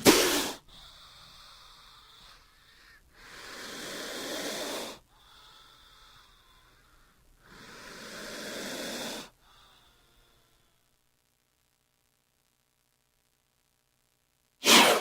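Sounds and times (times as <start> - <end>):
snake hissing: 0.0 - 2.3, 3.2 - 5.7, 7.4 - 9.4, 14.6 - 15.0.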